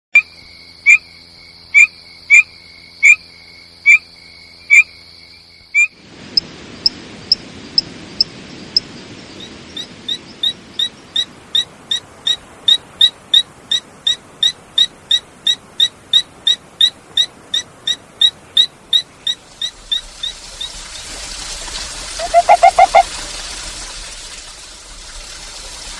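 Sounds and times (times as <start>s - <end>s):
frogs calling: 0.2s - 6.0s, 9.4s - 21.1s, 22.2s - 23.1s
high clicking peeps: 22.2s - 23.0s.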